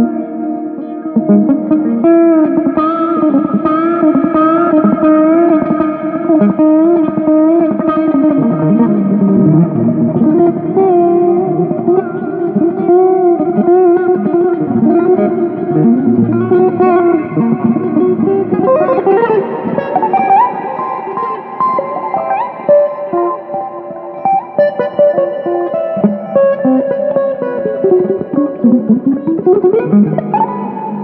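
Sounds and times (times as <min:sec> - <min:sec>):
electric guitar slow melody: 0:00.0 - 0:31.0
lower accompaniment: 0:08.2 - 0:31.0.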